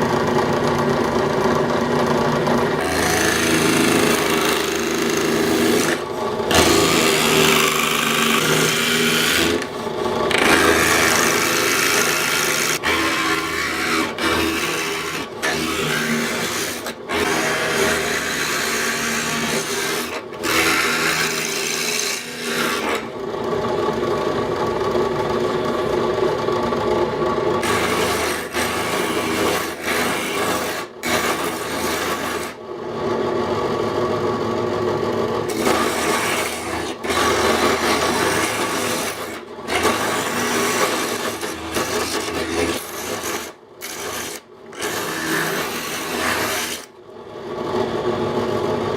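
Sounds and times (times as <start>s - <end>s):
planer cutter rasping on wood: 2.5s - 23.2s, 27.6s - 32.6s, 35.4s - 47.0s.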